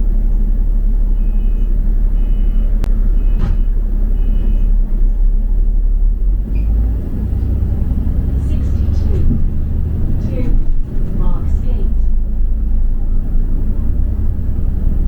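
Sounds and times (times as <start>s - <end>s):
bus engine rumbling: 0.0s - 15.0s
short two-tone beeps: 1.2s - 4.7s.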